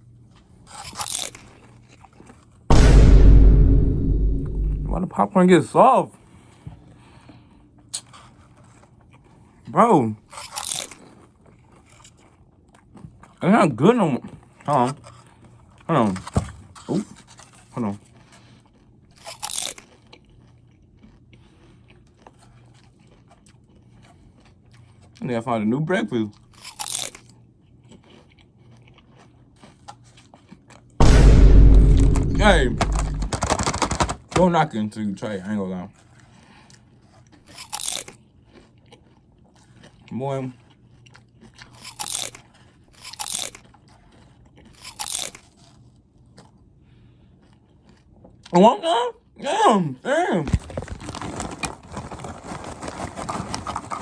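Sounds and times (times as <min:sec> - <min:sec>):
person chewing crunchy food: 0:00.6 - 0:02.4, 0:10.3 - 0:13.4, 0:16.6 - 0:25.2, 0:26.3 - 0:31.0, 0:36.0 - 0:48.5, 0:50.5 - 0:54.0.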